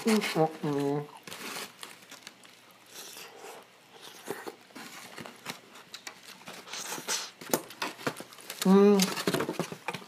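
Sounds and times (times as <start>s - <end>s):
person chewing food: 2.1s - 6.0s.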